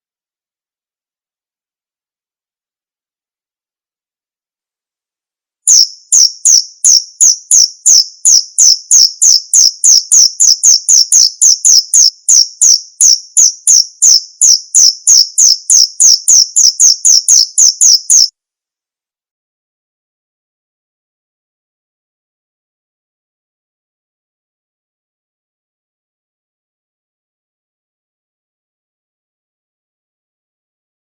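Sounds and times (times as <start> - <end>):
cricket chirping: 5.7 - 18.3.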